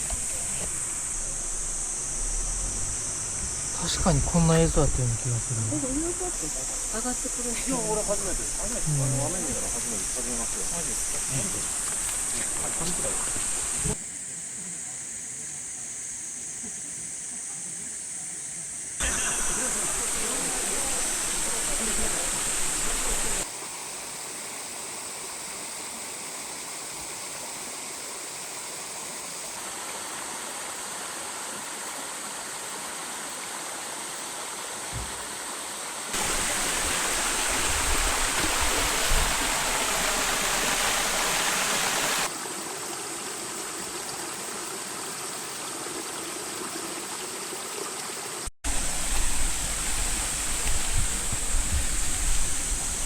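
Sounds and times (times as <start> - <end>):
waterfall rushing: 0.0 - 14.0, 19.0 - 23.4, 36.1 - 42.4, 48.7 - 53.0.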